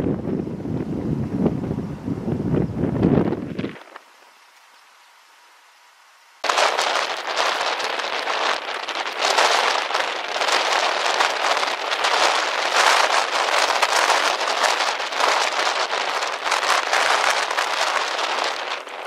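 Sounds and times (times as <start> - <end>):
rain pattering: 6.4 - 19.0.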